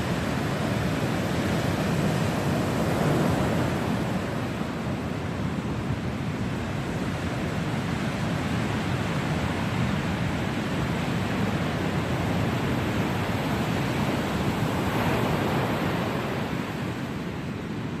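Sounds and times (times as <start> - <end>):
ocean waves breaking on beach: 0.0 - 18.0.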